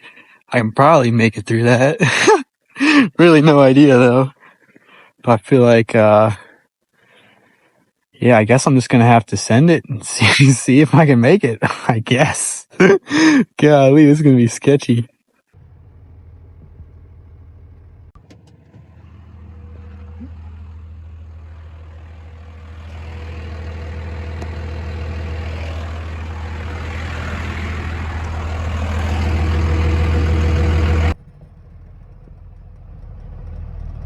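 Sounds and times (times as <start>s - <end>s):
truck engine revving: 15.6s - 34.0s.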